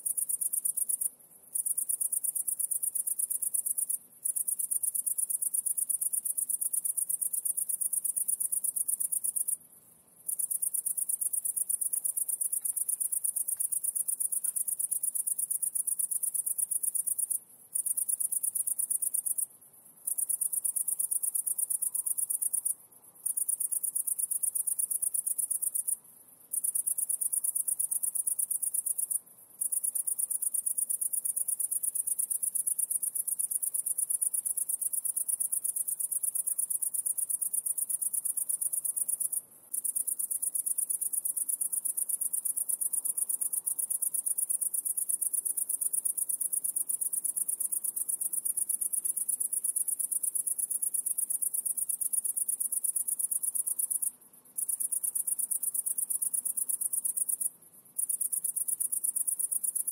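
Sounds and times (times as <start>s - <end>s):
insect high-pitched trill: 20.1s - 59.9s.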